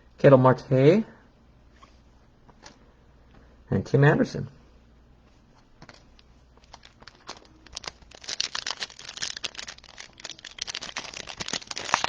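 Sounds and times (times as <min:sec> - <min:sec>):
foil wrapper crinkling and tearing: 0:05.9 - 0:12.0.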